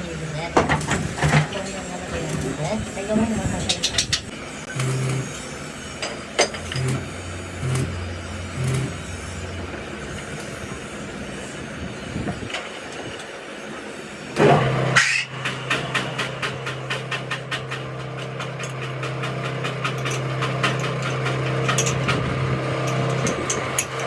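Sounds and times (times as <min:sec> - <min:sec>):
traffic noise: 0:00.0 - 0:24.0
engine hum with rapid ticking: 0:06.6 - 0:09.3, 0:15.3 - 0:24.0.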